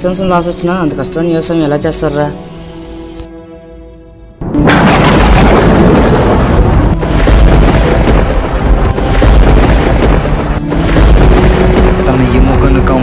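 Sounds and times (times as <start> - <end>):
thunderclap rumbling: 4.4 - 13.0.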